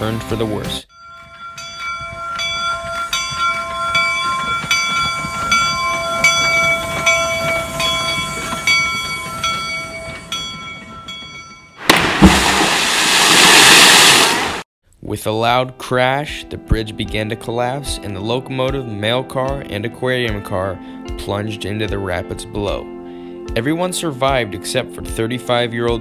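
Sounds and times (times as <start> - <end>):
train clicking over rails: 2.3 - 11.2
loud crash: 11.8 - 14.6.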